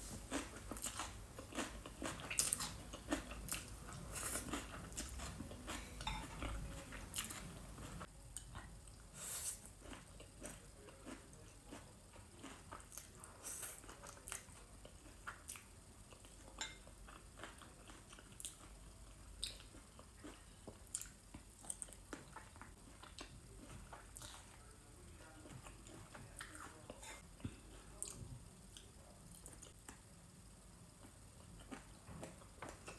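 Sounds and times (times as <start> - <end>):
person chewing and biting food: 0.0 - 8.7, 9.6 - 16.2, 19.4 - 24.7.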